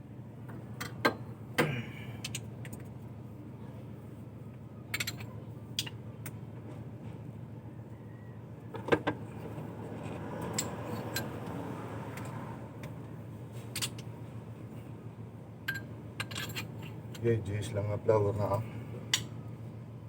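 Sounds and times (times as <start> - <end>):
steady low hum: 0.0 - 20.0
metal tools clinking: 15.7 - 17.3.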